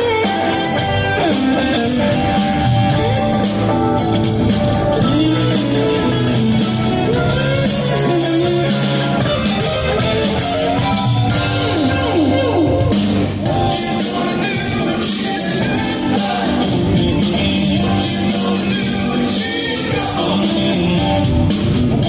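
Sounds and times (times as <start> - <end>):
lead guitar bending notes: 0.0 - 18.6
live rock band playing: 0.0 - 22.0.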